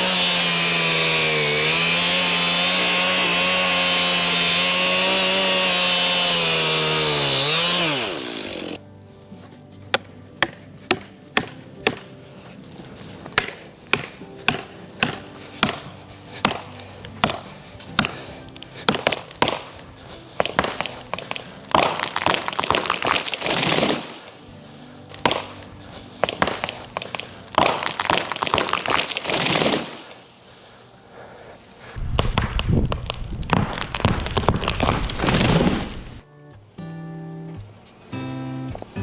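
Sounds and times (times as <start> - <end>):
sharp blows on wood: 0.0 - 8.8, 13.4 - 19.8
soft background music: 0.0 - 29.4, 36.2 - 39.0.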